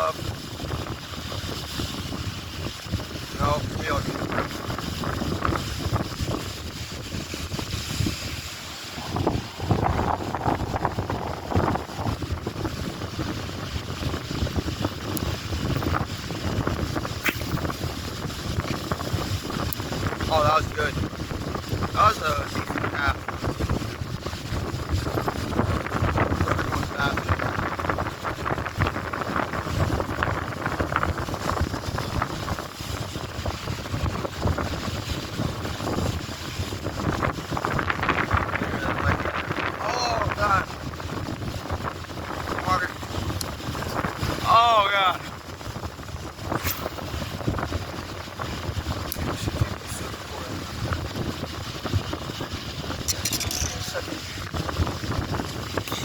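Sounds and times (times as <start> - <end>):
lake water lapping shore: 0.0 - 56.0
wind buffeting microphone: 0.0 - 56.0
lake water splashing: 1.0 - 21.0.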